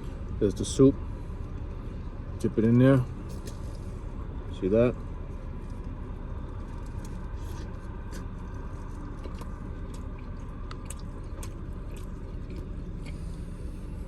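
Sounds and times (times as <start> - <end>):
steady low hum: 0.0 - 14.0
person chewing food: 5.6 - 14.0.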